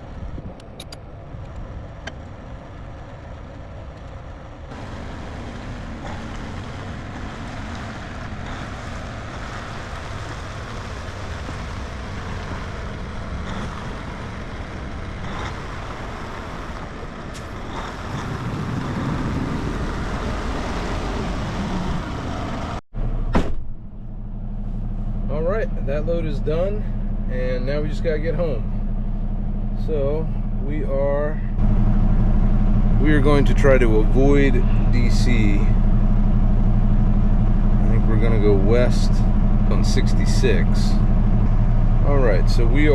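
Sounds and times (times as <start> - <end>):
diesel truck engine rumble: 0.0 - 42.9
click: 0.6 - 2.2.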